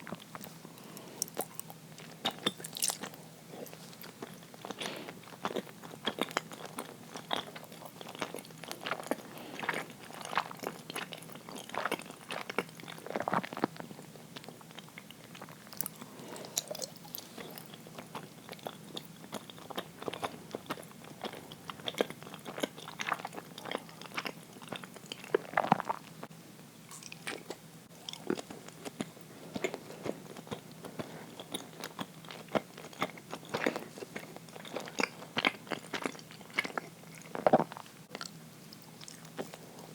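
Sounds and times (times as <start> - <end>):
wet chewing mouth sounds: 0.0 - 26.2, 26.9 - 39.9.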